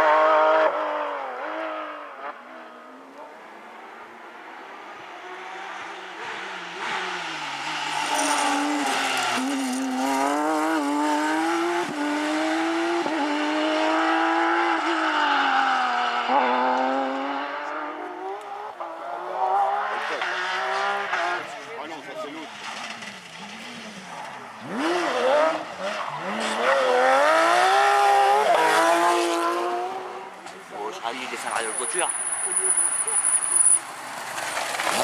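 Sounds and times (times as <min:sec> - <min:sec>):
rally car engine revving: 0:00.0 - 0:35.0
tyre squeal: 0:07.2 - 0:10.2, 0:31.4 - 0:35.0.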